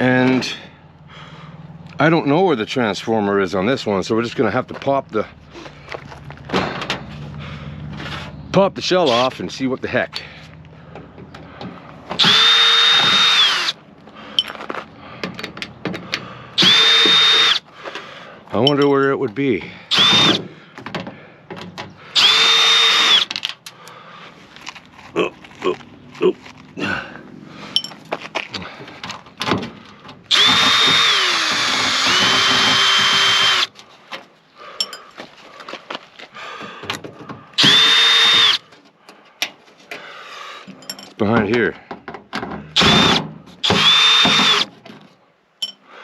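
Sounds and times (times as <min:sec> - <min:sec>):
power drill running: 0:12.2 - 0:13.8, 0:16.6 - 0:17.7, 0:19.9 - 0:20.5, 0:22.1 - 0:23.3, 0:30.3 - 0:33.7, 0:37.6 - 0:38.7, 0:42.8 - 0:44.7
handling clicks and clatter: 0:23.2 - 0:24.0
metal parts clicking and clattering: 0:40.6 - 0:41.3.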